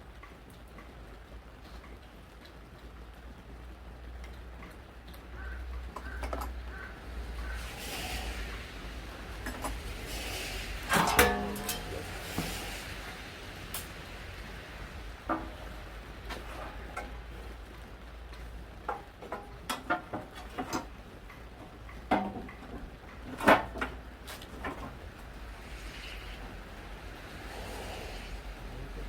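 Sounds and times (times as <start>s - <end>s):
low steady hum: 10.8s - 19.5s.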